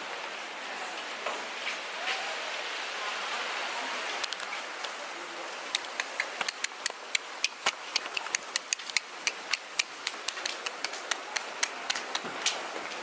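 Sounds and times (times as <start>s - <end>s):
heavy rain hissing: 0.0s - 13.0s
raindrops ticking on hard surface: 5.7s - 13.0s.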